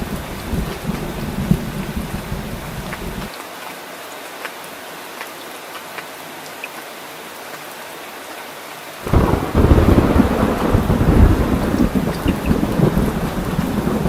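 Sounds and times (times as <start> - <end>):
loud low thunder rumble: 0.0 - 3.3, 9.0 - 14.0
rain drops ticking: 0.0 - 14.0
steady rain falling: 0.0 - 14.0.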